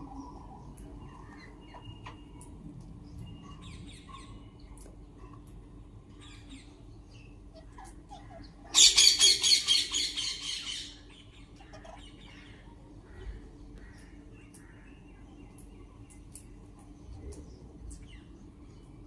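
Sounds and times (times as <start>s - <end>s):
parrot screeching: 8.7s - 11.0s.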